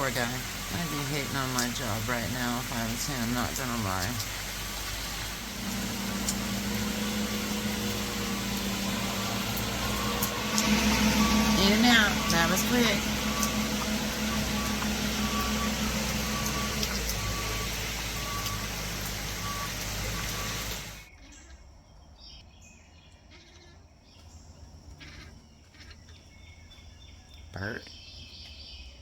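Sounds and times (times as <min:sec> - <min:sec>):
reversing alarm beeping: 0:00.0 - 0:21.1
truck engine running: 0:00.0 - 0:21.1.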